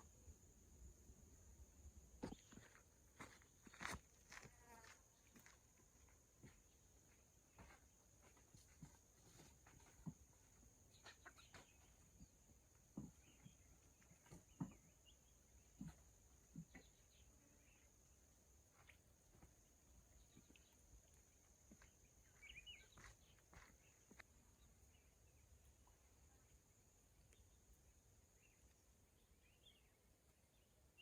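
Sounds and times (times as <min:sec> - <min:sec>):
faint taps and knocks: 0:12.9 - 0:15.0, 0:15.7 - 0:17.0.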